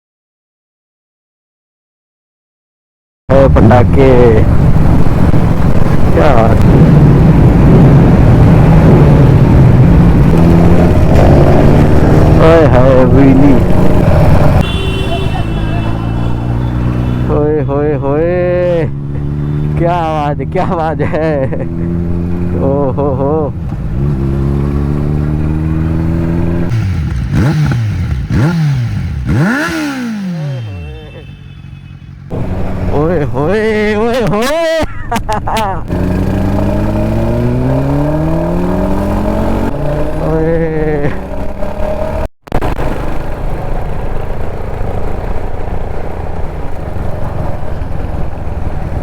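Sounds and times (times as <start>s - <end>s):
wind and road noise: 3.3s - 49.0s
motorcycle engine revving: 4.0s - 33.9s, 35.9s - 49.0s.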